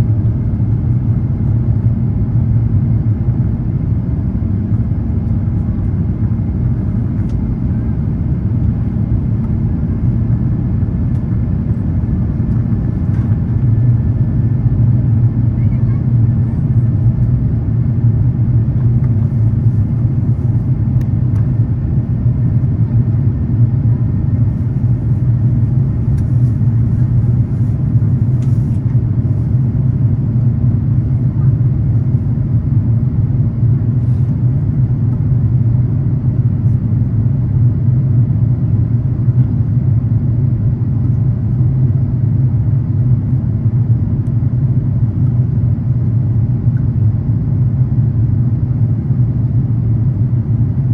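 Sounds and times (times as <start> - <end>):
jet engine rumble in cabin: 0.0 - 50.9.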